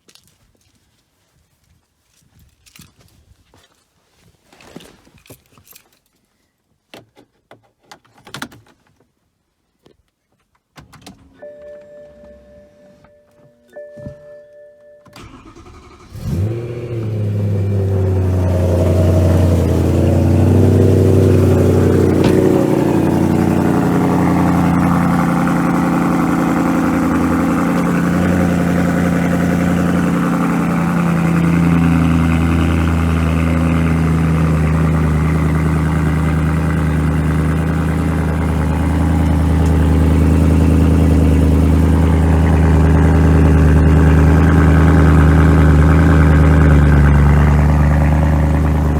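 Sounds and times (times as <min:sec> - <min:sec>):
car engine starting and idling: 0:15.0 - 0:48.9.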